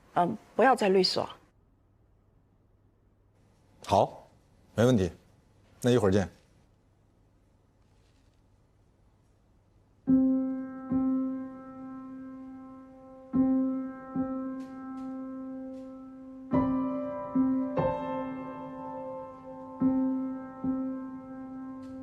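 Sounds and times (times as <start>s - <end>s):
slow piano music: 10.0s - 22.0s.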